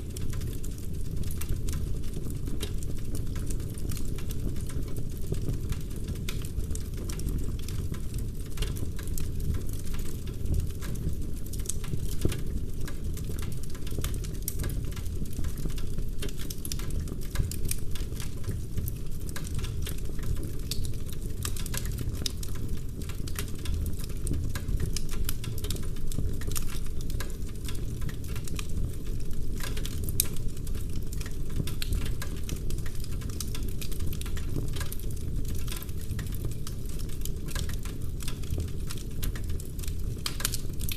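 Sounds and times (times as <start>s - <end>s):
low rumble of flame: 0.0s - 40.9s
wood fire crackling and popping: 0.0s - 40.9s.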